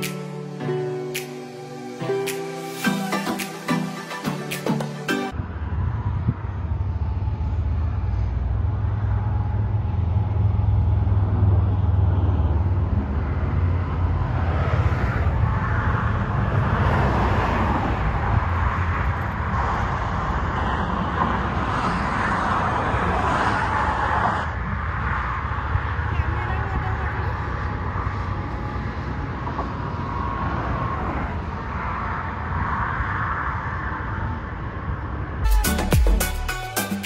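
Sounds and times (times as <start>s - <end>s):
engine and road rumble: 4.9s - 36.7s.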